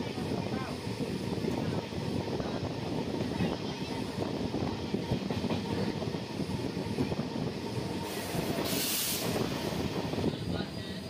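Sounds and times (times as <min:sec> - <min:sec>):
loud hiss of passing locomotive: 0:00.0 - 0:11.0
rumble of wheels on rails: 0:00.0 - 0:11.0.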